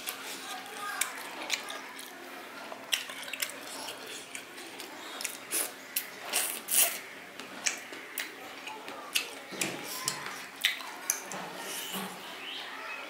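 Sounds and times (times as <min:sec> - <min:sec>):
wet chewing and lip smacks: 0:02.9 - 0:11.4.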